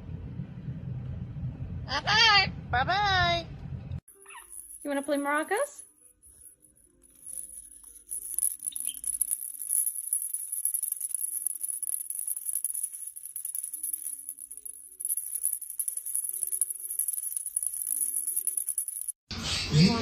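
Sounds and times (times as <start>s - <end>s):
maraca rattling: 4.1s - 19.2s.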